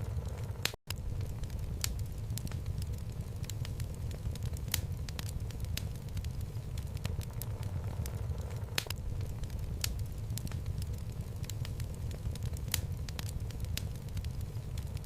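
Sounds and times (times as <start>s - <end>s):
fire rumbling: 0.0s - 15.0s
logs crackling and popping: 0.0s - 15.0s.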